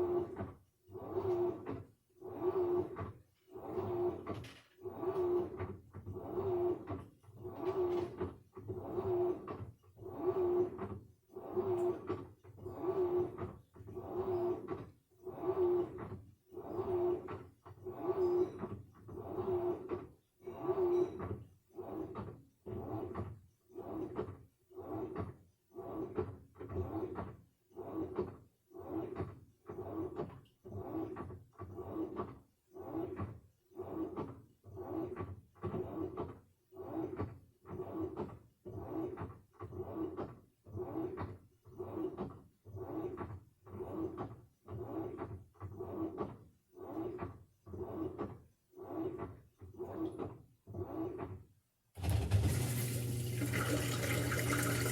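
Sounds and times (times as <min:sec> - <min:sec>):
washing machine motor whining: 0:52.0 - 0:54.9.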